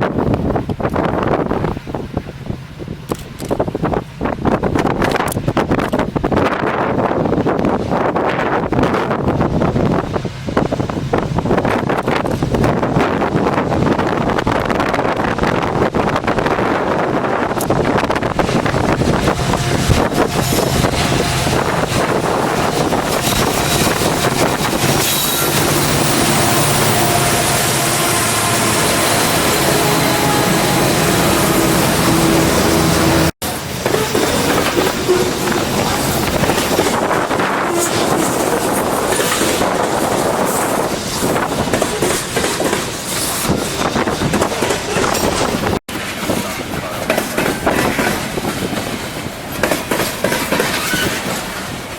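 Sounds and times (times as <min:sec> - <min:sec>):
diesel locomotives rumbling: 0:00.0 - 0:51.9
wind buffeting microphone: 0:00.0 - 0:51.9
freight train wheels clacking: 0:08.2 - 0:51.9.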